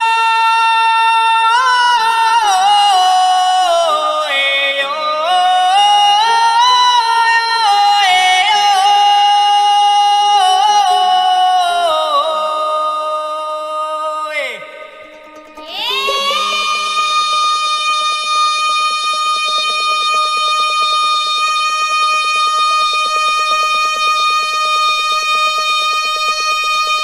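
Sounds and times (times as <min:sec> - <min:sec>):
fainter lower vocal line: 0:00.0 - 0:27.0
high voice singing long notes: 0:00.0 - 0:27.0.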